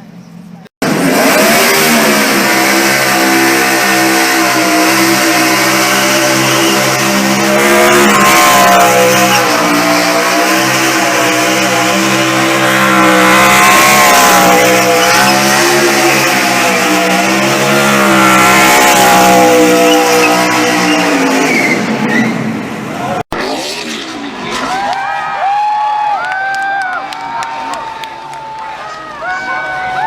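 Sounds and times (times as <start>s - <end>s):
race car engine revving: 0.8s - 25.1s
spinning tyres hissing: 1.0s - 22.8s.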